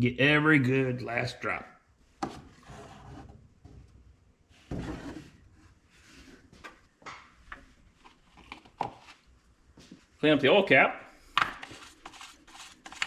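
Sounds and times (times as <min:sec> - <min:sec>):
knock with a scrape: 0:04.7 - 0:05.3.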